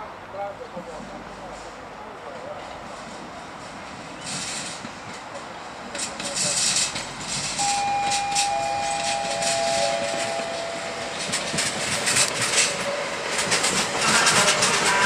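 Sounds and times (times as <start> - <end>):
train wheels clicking over rail joints: 0.9 - 15.0
two-note metallic squeal: 7.6 - 11.4.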